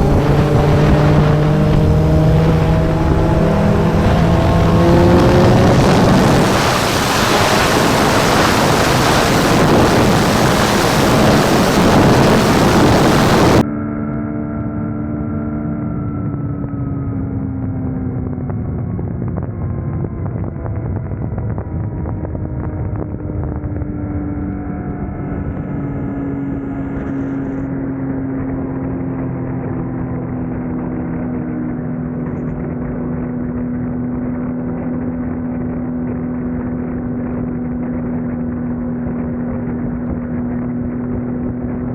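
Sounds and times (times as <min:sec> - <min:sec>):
wind rush: 0:00.0 - 0:13.6, 0:16.1 - 0:41.9
motorcycle engine drone: 0:00.0 - 0:41.9.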